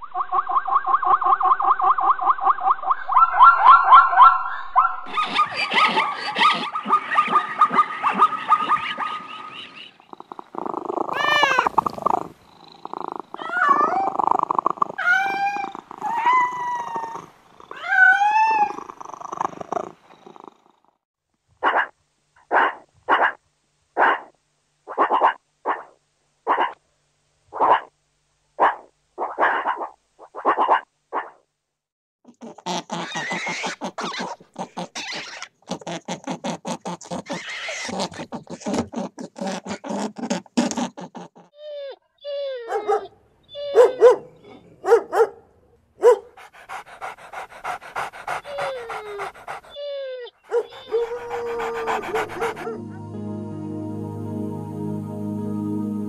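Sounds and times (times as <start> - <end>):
animal call with rasping pulses: 0.4 - 21.0, 32.3 - 42.4, 46.4 - 52.8
cat purring: 10.1 - 17.8, 18.5 - 20.9, 46.5 - 49.8
cat meowing: 11.1 - 12.2, 13.4 - 18.9.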